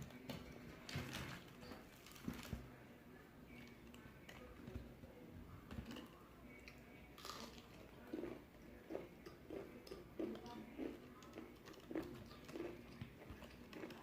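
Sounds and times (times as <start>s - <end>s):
chewing crispy chicken: 5.8s - 14.0s.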